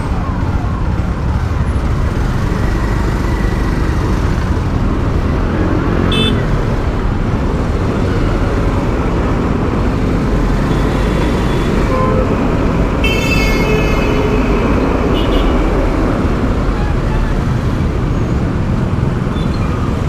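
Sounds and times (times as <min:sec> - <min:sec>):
motorcycle wind and road noise: 0:00.0 - 0:20.0
vehicle horn: 0:06.1 - 0:06.4, 0:10.7 - 0:12.4, 0:13.0 - 0:15.7.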